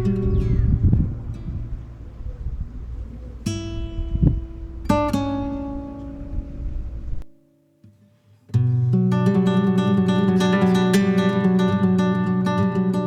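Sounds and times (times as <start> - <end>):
acoustic guitar strumming: 0.0 - 2.3, 3.4 - 13.0
low rumble: 0.0 - 7.3
acoustic guitar plucked notes: 0.0 - 13.0.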